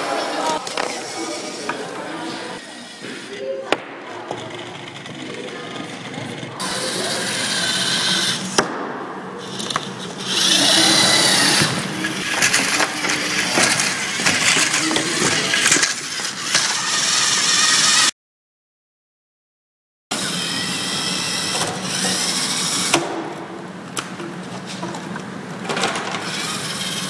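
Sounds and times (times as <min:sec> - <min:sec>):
robot motors whirring: 0:04.3 - 0:08.7, 0:09.4 - 0:18.1, 0:20.2 - 0:23.2, 0:25.8 - 0:27.0
plastic parts clicking and clattering: 0:12.2 - 0:17.0.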